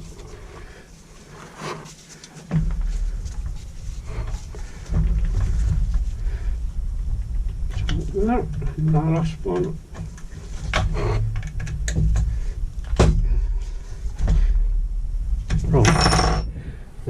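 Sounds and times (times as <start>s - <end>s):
low rumble: 2.6s - 17.0s
knocks and clicks of parts: 9.5s - 13.2s.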